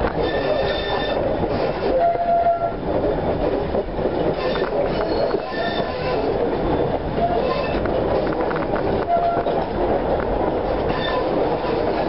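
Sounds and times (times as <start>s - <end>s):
railway carriage wheels rumbling: 0.0s - 12.0s
brief squeal: 4.4s - 6.0s.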